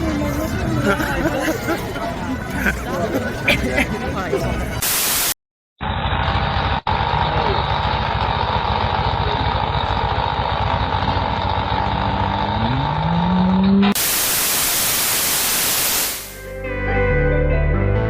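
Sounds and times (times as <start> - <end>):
loud white-noise static: 4.8 - 5.3, 14.0 - 16.4
low pulsing engine-like rumble: 5.9 - 13.9.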